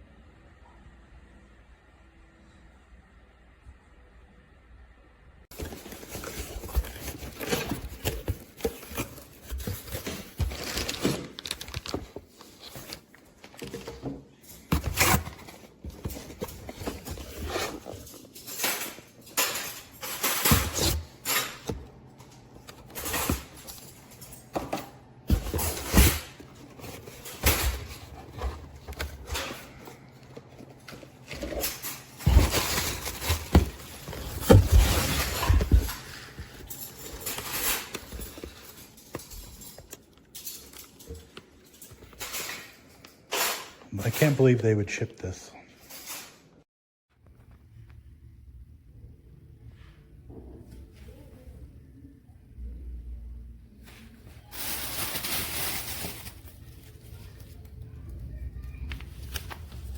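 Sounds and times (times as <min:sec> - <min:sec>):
handling noise clicks and rustling: 0:05.5 - 0:44.5.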